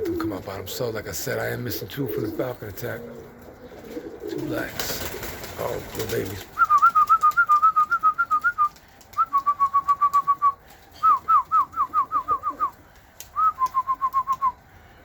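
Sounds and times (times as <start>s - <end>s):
rapid whistling: 6.3s - 14.6s.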